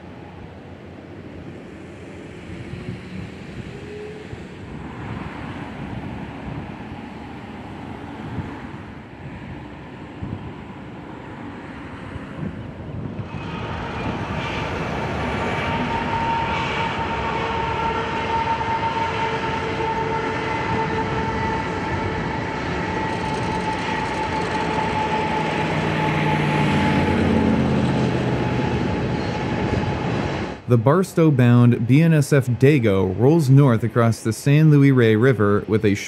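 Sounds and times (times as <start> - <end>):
freight train rumbling: 0.0 - 36.0
steady high whine: 22.4 - 34.8.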